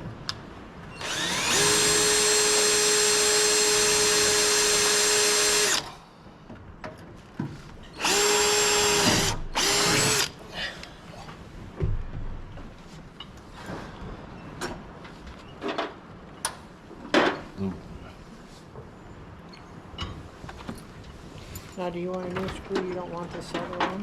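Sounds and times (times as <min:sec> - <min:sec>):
electric drill boring through metal: 0:01.0 - 0:05.9, 0:08.0 - 0:10.3.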